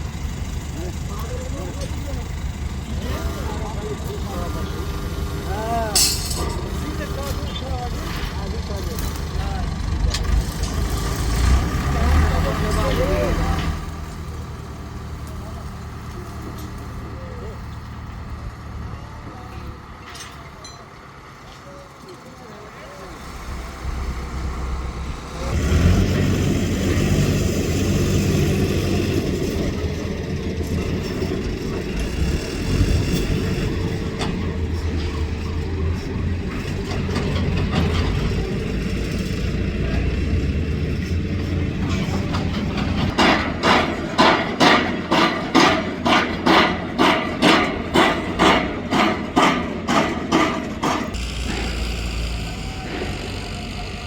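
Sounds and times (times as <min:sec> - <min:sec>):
vehicle engine running: 0:00.0 - 0:54.0
steady hammering: 0:42.8 - 0:51.7.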